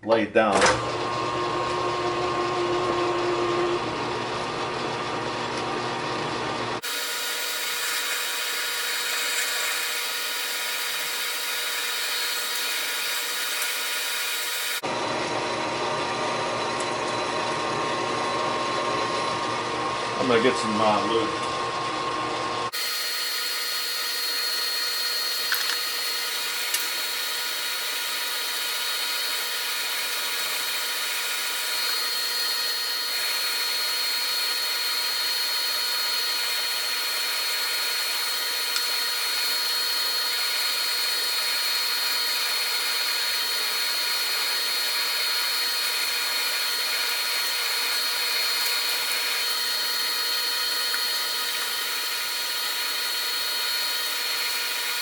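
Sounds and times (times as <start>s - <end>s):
drill cutting steel whine: 6.8s - 15.0s, 22.7s - 55.0s.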